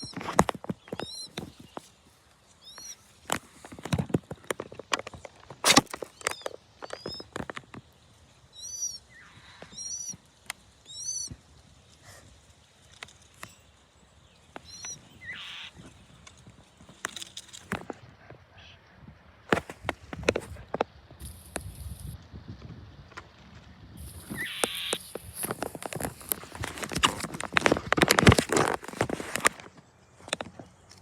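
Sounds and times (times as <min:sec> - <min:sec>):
baby birds peeping: 0:00.0 - 0:01.9, 0:02.6 - 0:04.5, 0:06.0 - 0:07.4, 0:08.6 - 0:10.2, 0:10.9 - 0:11.4, 0:14.5 - 0:16.0, 0:24.0 - 0:27.1
rustling: 0:19.5 - 0:22.2, 0:23.2 - 0:31.0.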